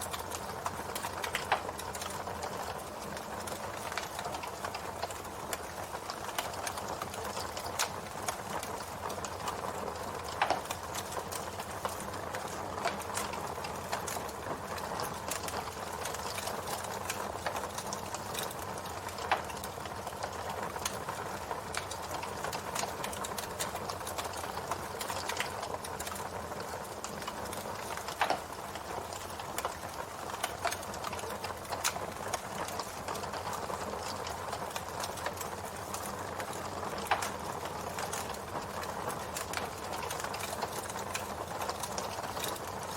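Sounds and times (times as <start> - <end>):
campfire crackling: 0.0 - 42.9
sharp fire pops: 6.3 - 19.7, 21.7 - 33.3, 34.0 - 42.6.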